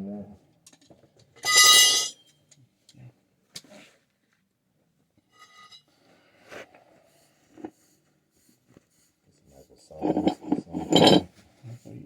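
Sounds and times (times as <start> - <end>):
metal tools clinking: 1.4 - 2.1, 10.0 - 11.2.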